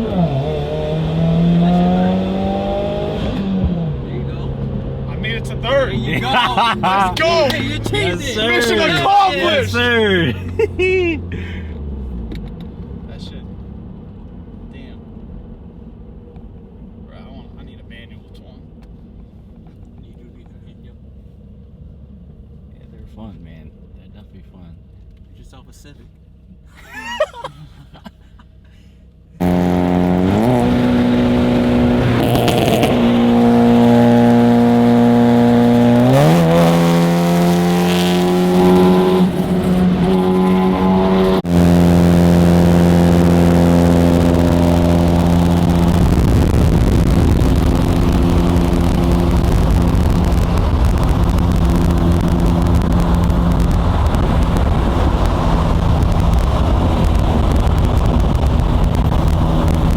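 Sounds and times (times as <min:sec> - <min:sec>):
car engine running loud: 0:00.0 - 0:13.8, 0:29.4 - 0:59.9.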